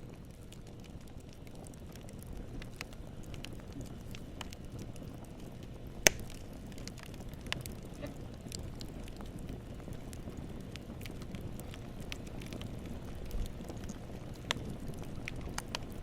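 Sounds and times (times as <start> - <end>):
wood fire burning: 0.0 - 16.0
loud sharp pop of wood: 6.0 - 6.4.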